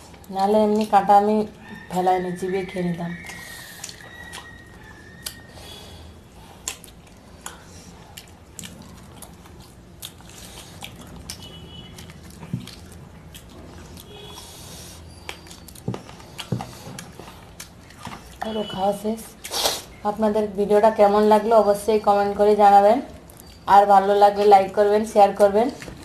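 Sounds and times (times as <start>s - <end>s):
person chewing: 3.2s - 18.4s.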